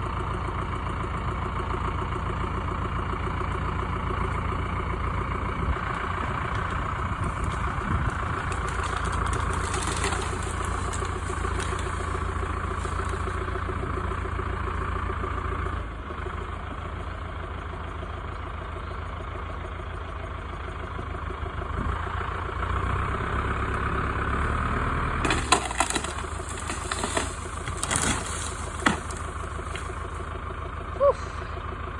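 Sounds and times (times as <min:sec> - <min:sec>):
tractor diesel engine running: 0:00.0 - 0:31.9
wood cracking and splintering: 0:03.5 - 0:14.4, 0:25.1 - 0:30.4.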